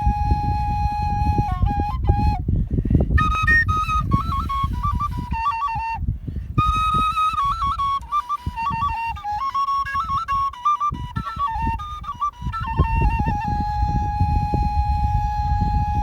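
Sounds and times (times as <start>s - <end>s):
end-blown flute melody: 6.6s - 16.0s.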